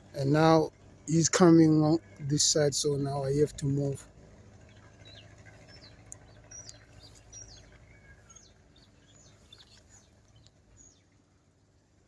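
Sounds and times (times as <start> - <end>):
faint low hum: 0.0 - 12.0
bird chirps: 4.6 - 11.2.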